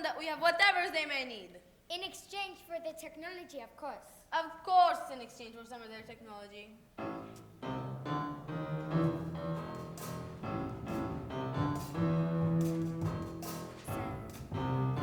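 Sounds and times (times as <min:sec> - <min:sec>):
piano instrumental music: 0:07.0 - 0:15.0.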